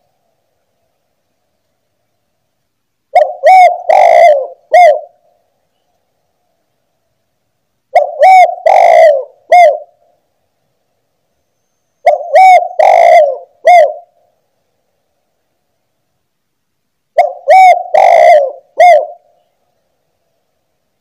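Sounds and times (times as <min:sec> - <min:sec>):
dove cooing: 0:03.1 - 0:05.3, 0:07.9 - 0:10.1, 0:12.0 - 0:14.2, 0:17.2 - 0:19.5.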